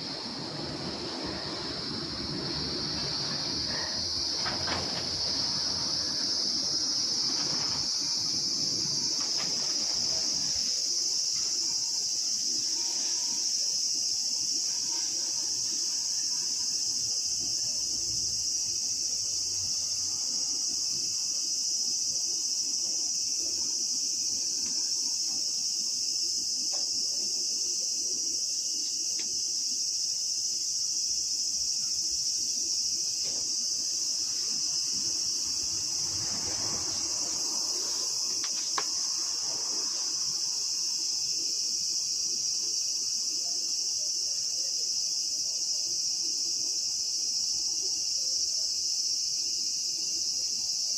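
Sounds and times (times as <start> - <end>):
high-pitched insect chorus: 0.0 - 50.9.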